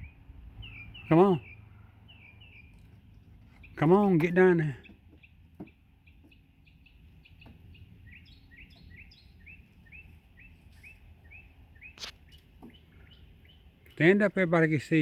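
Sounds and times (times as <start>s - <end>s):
bird chirping: 0.0s - 14.6s
sharp click: 12.0s - 12.2s.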